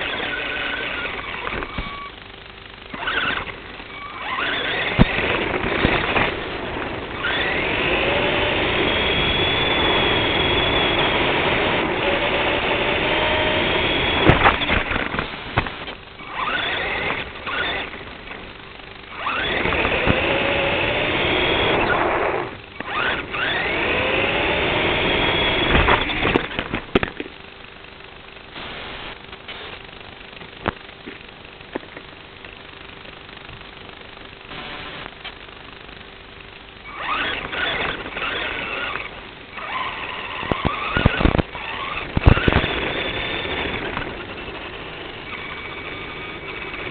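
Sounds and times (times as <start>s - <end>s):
toy car motor whining: 0.0s - 2.2s, 2.9s - 18.4s, 19.1s - 26.9s, 36.8s - 46.9s
steady rushing noise: 0.0s - 46.9s.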